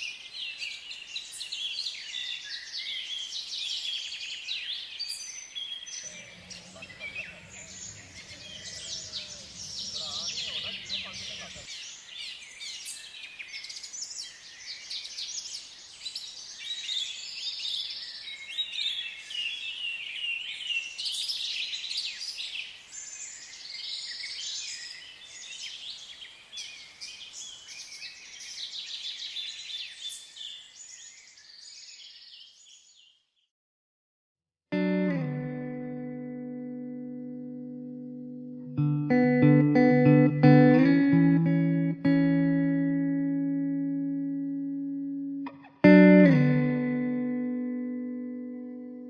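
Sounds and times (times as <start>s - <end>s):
birds chirping chorus: 0.1s - 33.3s.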